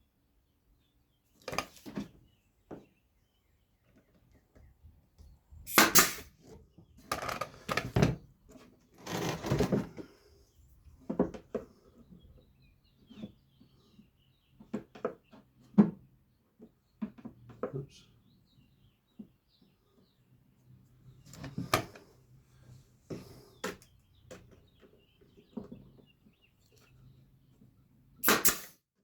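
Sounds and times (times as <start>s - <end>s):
wooden pieces scraping: 9.0s - 10.1s.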